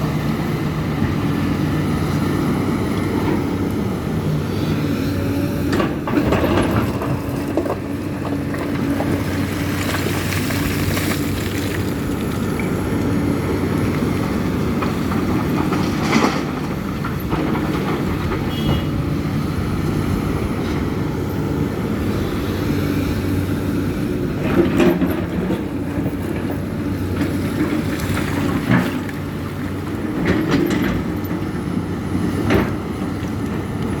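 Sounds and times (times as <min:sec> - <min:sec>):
excavator diesel engine running: 0:00.0 - 0:34.0
knocks and clanks from digging: 0:05.6 - 0:11.9.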